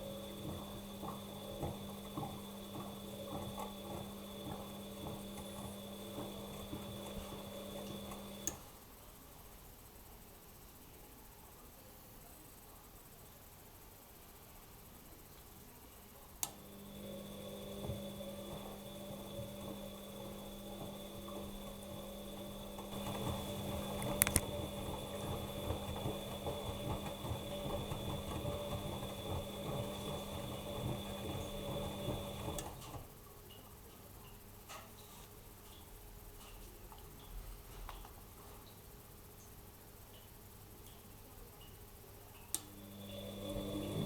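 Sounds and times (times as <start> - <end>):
washing machine motor humming: 0.0 - 8.8, 16.5 - 33.2, 42.5 - 44.0.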